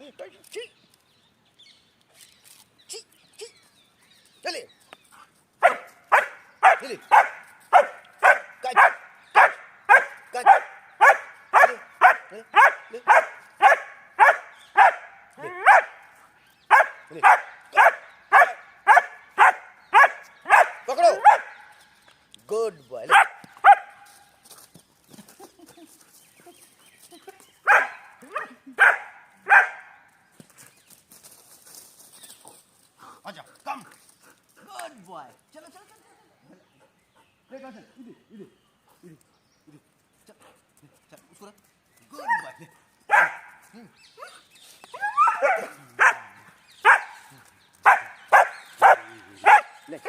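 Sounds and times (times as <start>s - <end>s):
dog barking: 5.6s - 16.0s, 16.7s - 21.7s, 23.1s - 24.0s, 27.7s - 30.0s, 42.3s - 43.5s, 45.2s - 49.8s.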